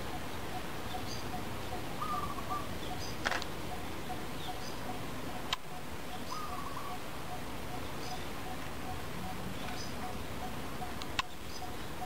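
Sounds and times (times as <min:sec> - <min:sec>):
birds calling: 0:00.0 - 0:12.0
steady background hiss: 0:00.0 - 0:12.0
sharp clicks: 0:05.5 - 0:05.7.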